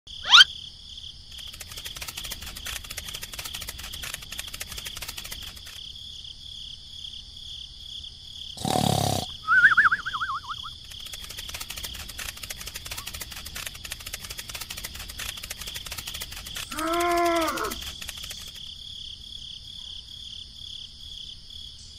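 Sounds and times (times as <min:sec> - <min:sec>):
crickets chirping: 0:00.1 - 0:21.9
quick warbling whistle: 0:00.2 - 0:00.5, 0:09.4 - 0:10.8.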